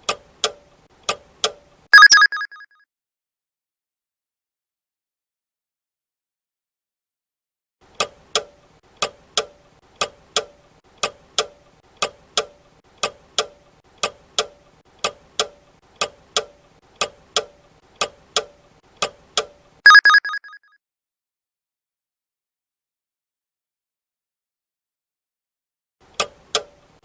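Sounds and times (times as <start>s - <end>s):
ringing alert: 2.0s - 2.6s, 19.9s - 20.6s.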